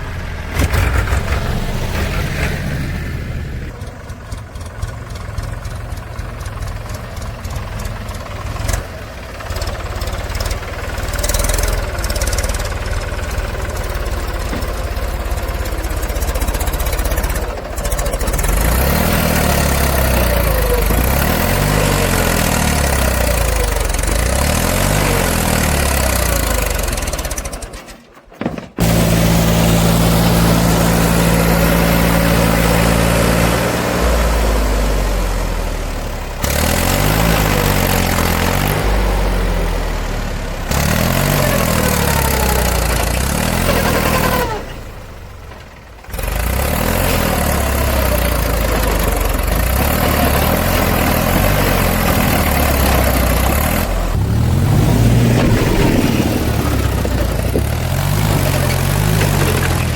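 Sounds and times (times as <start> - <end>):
diesel engines revving: 0.0 - 27.8, 28.8 - 59.9.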